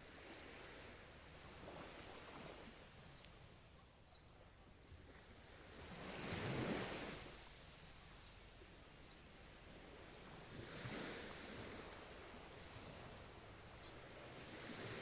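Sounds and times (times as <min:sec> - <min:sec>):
ocean waves washing: 0:09.4 - 0:15.0.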